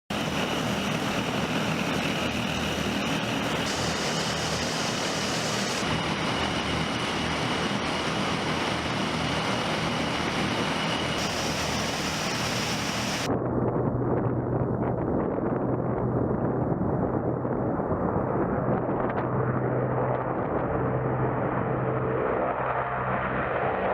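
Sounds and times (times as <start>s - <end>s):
propeller aircraft engines droning: 0.1s - 23.9s
faint high whine: 0.2s - 7.2s, 9.4s - 13.3s.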